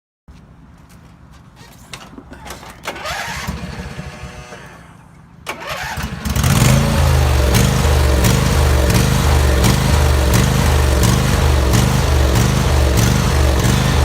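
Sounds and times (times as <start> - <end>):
mower engine starter cranking: 2.5 - 14.0
mower engine running loudly: 5.8 - 14.0.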